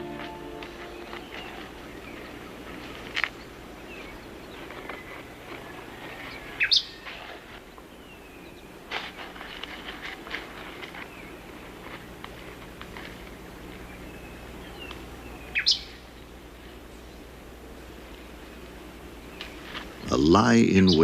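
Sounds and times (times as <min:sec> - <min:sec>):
birds calling: 0:00.0 - 0:21.0
steady background hiss: 0:00.0 - 0:21.0
small bird chirps: 0:06.3 - 0:07.0, 0:13.9 - 0:16.0.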